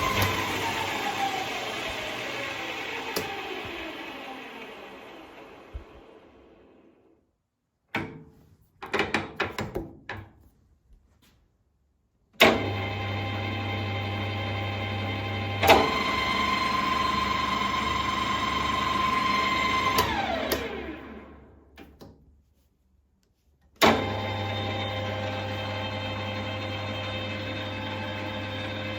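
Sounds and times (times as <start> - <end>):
lathe motor humming and whining: 0.0 - 6.8, 12.5 - 21.4, 23.8 - 28.9.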